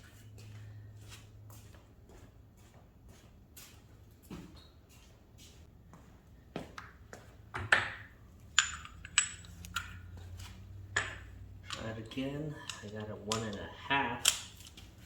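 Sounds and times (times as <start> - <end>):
steel tools clinking: 7.9 - 15.0.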